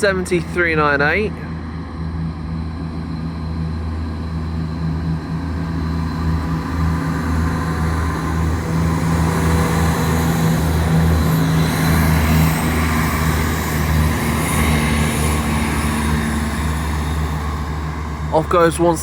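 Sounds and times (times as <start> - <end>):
train diesel engines droning: 0.0 - 19.0.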